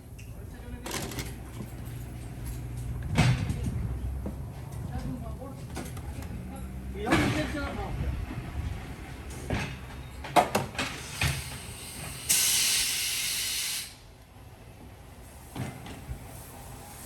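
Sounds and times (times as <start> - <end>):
compressed air hiss: 11.0 - 14.0.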